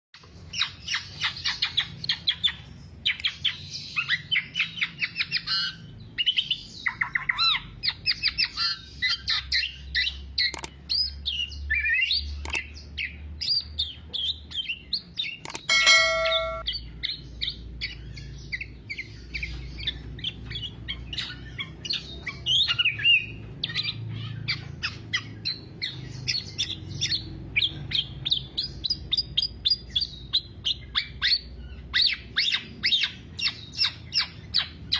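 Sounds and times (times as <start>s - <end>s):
bird singing trills and whistles: 0.5s - 34.9s
short steady tone: 15.7s - 16.6s.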